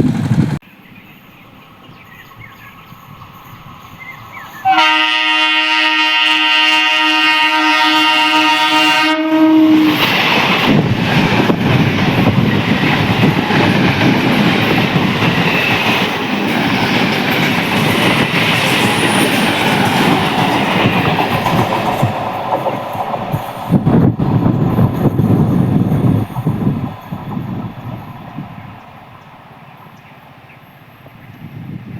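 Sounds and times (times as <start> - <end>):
train horn: 4.6 - 10.2
train wheels clattering: 9.8 - 30.0.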